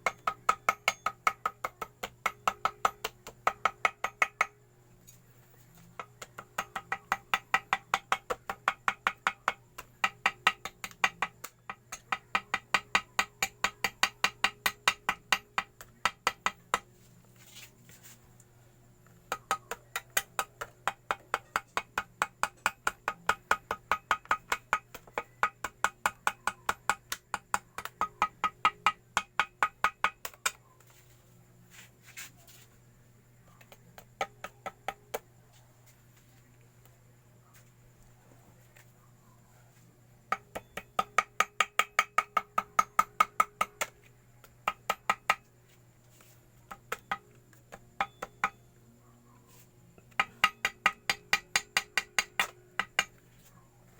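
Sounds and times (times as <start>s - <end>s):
small hammer tapping on metal: 0.0s - 4.6s, 5.8s - 16.9s, 19.1s - 31.1s, 33.6s - 35.2s, 40.3s - 45.5s, 46.7s - 48.6s, 50.0s - 53.2s.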